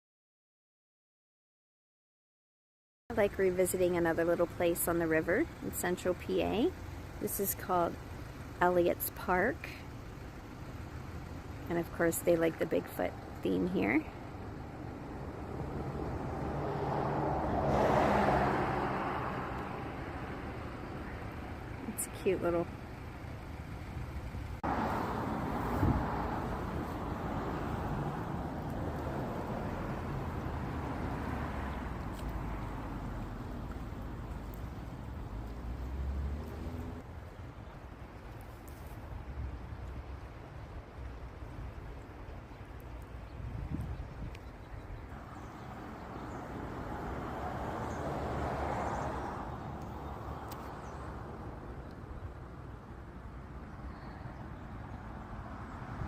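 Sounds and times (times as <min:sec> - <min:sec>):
distant road traffic rush: 0:03.1 - 0:56.0.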